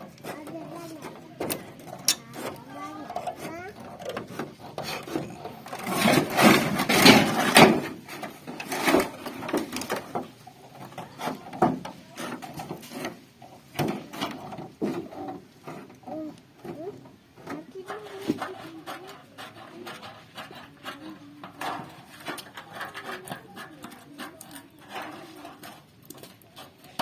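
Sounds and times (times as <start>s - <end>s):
scraping sheet metal: 0.2s - 10.2s.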